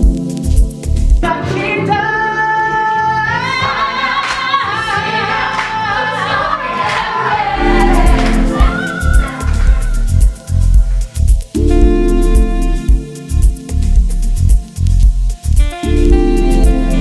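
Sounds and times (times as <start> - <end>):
musical accompaniment: 0.0 - 17.0
voices singing in harmony: 3.0 - 10.8.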